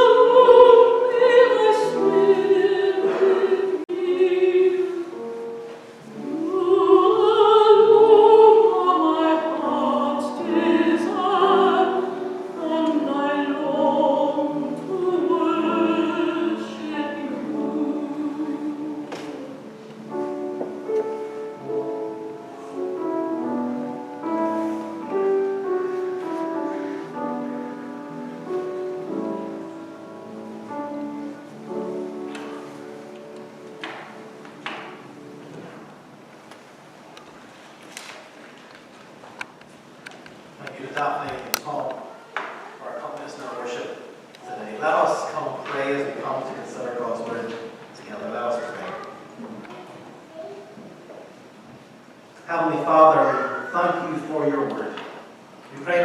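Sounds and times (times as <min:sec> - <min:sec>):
person singing with vibrato: 0:00.0 - 0:20.4
instrumental accompaniment: 0:00.0 - 0:37.4.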